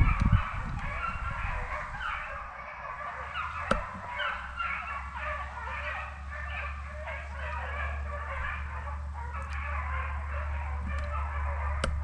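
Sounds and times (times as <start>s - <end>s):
hounds baying: 0.0s - 12.0s.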